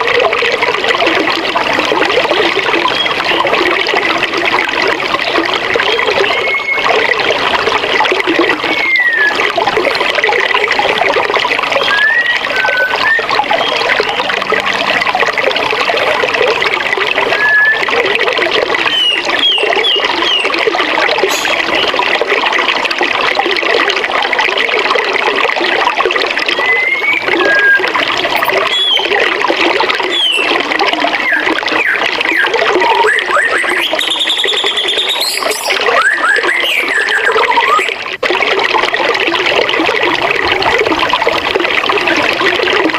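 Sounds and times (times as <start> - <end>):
birds chirping and whistling: 5.9 - 6.9, 8.7 - 9.4, 11.8 - 14.2, 18.9 - 20.5, 21.3 - 21.9, 26.5 - 29.2, 30.1 - 30.5, 31.2 - 38.0.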